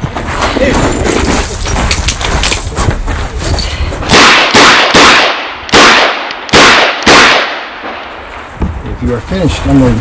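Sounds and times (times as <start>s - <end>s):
rustling windy noise: 0.0s - 10.0s
handgun shots: 4.1s - 7.6s.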